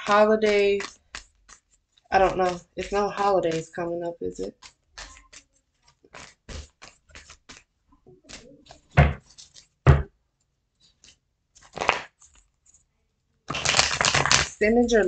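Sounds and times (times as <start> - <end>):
cards being shuffled: 0.1 - 3.7, 4.5 - 10.0, 10.8 - 12.8, 13.5 - 15.0
loud card slaps: 11.6 - 12.2, 13.5 - 14.5.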